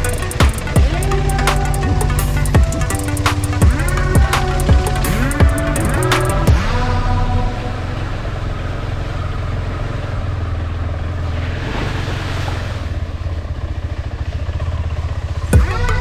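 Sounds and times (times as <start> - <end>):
motorcycle engine humming: 0.0 - 16.0
wind and tyre noise: 5.6 - 16.0.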